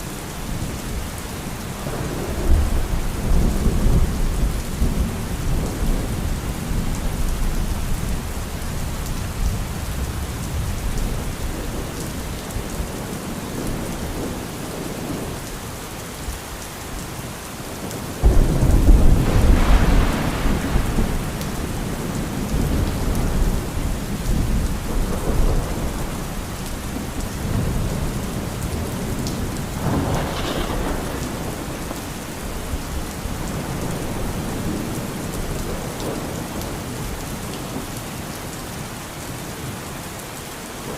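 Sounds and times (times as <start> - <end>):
steady rain: 0.0 - 40.9
low rumbling thunder: 1.7 - 15.5, 17.7 - 37.2
loud thunderclap: 18.2 - 36.4.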